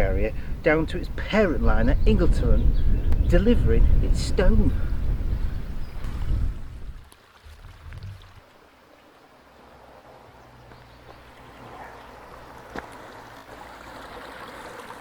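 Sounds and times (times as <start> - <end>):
steady low rumble: 1.7 - 8.4
small stream trickling: 6.0 - 15.0.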